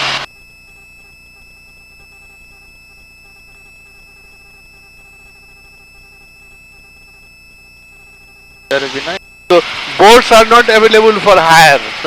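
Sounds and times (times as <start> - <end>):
helicopter cabin hum: 0.0 - 12.0
high-pitched whine tones: 0.0 - 12.0.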